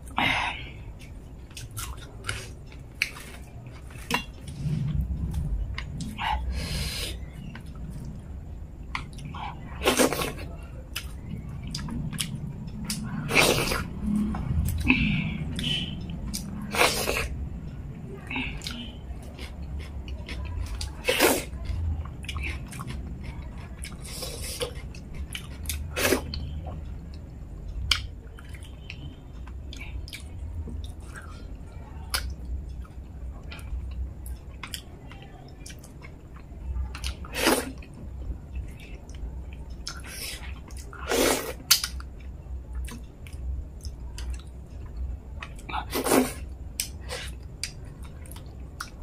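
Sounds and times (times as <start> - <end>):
wet chewing and mouth smacks: 8.8 - 17.3, 38.6 - 49.0.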